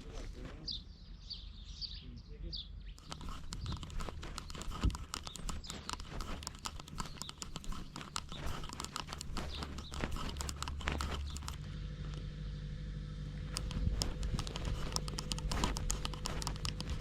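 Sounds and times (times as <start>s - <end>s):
quick irregular clicks and scrapes: 3.0s - 12.3s, 13.4s - 17.0s
low steady rumble: 10.1s - 17.0s.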